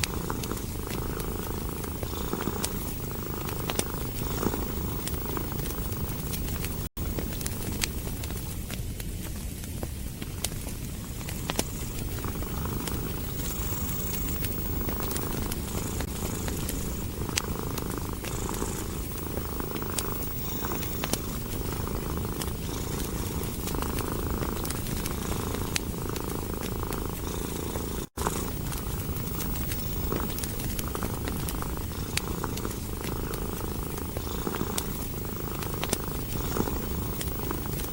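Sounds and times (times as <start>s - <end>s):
cat purring: 0.0s - 37.9s
wood fire crackling: 0.0s - 37.9s.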